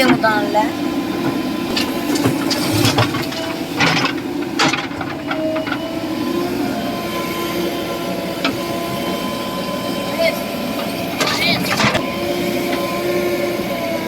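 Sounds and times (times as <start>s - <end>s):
backhoe diesel engine running: 0.0s - 14.0s
sharp knocks and clanks: 1.2s - 6.0s, 10.8s - 12.1s.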